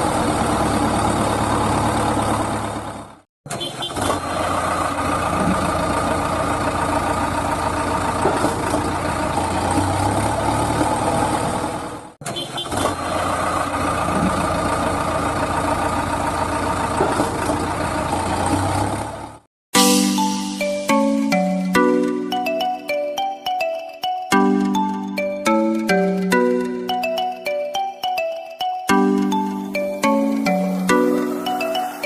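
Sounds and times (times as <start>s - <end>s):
small engine running: 0.0s - 19.4s.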